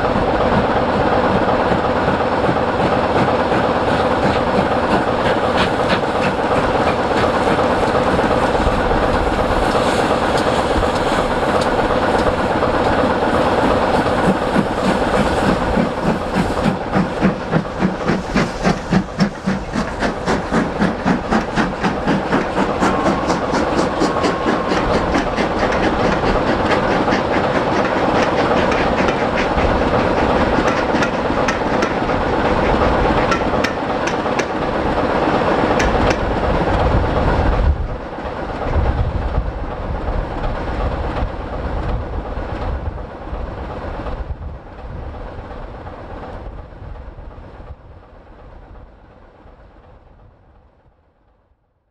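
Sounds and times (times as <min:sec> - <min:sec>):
train wheels clicking on rail joints: 0:00.0 - 0:39.5.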